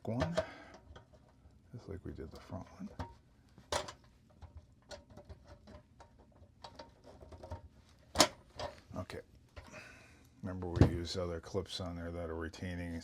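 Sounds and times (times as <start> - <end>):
light metallic ticks and scraping: 0.0 - 1.6, 2.2 - 9.7.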